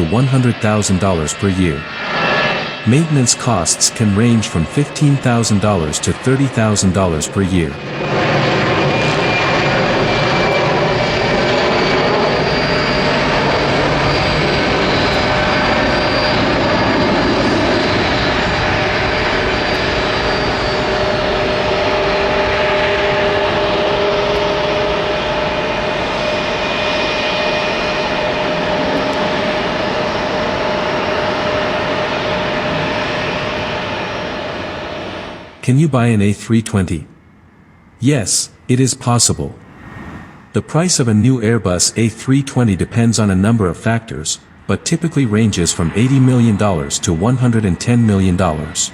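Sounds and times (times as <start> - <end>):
jet engines running: 0.0 - 48.9.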